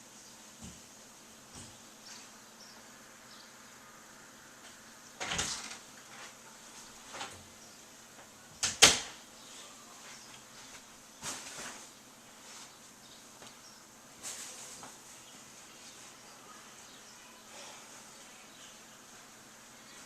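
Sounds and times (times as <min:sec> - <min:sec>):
steady faint hiss: 0:00.0 - 0:20.0.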